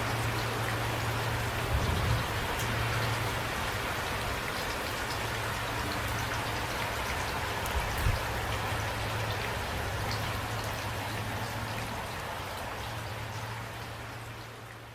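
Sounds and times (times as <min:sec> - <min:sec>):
light rain falling: 0:00.0 - 0:14.9.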